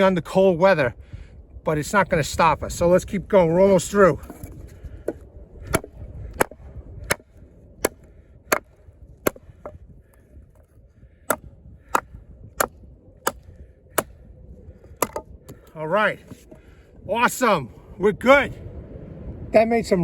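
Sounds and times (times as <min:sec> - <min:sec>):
knife chopping into log: 0:05.7 - 0:09.8, 0:15.0 - 0:15.2.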